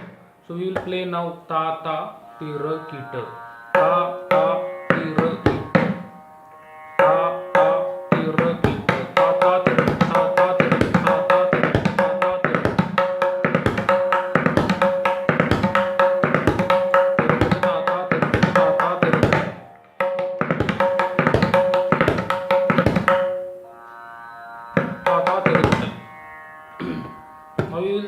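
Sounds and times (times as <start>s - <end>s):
tabla playing: 0.0s - 1.1s, 2.2s - 6.2s, 7.0s - 23.8s, 24.6s - 26.2s, 26.8s - 28.0s
sustained tone: 1.7s - 9.8s, 23.3s - 28.0s.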